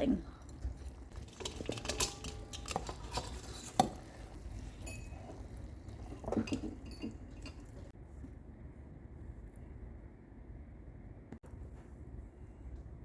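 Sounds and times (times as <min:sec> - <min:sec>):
utensil clinking glass bowl: 0:00.0 - 0:07.9.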